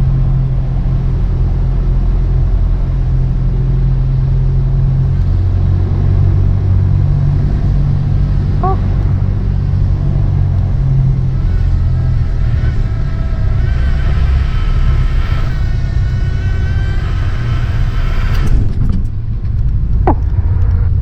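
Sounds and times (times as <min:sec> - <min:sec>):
airplane engine and propeller droning: 0:00.0 - 0:21.0
stall warning horn: 0:08.3 - 0:18.7
sharp knocks: 0:20.0 - 0:20.4.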